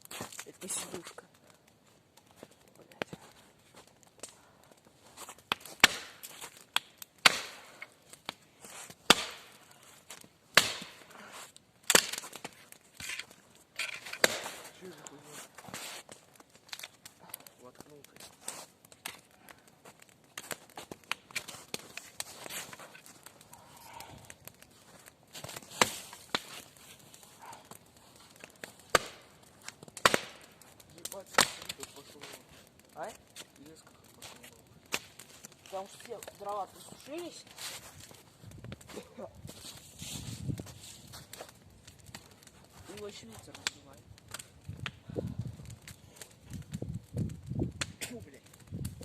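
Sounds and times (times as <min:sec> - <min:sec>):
dry wood cracking and snapping: 0:00.0 - 0:49.0
axe chopping firewood: 0:05.4 - 0:15.1, 0:19.9 - 0:24.6, 0:25.4 - 0:26.7, 0:28.4 - 0:34.2
faint rustle: 0:36.7 - 0:43.7.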